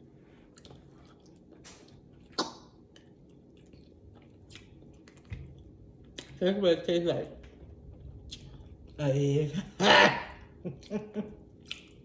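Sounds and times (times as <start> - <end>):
wet chewing and lip smacking: 0.4 - 6.4, 7.4 - 9.0, 10.8 - 12.0.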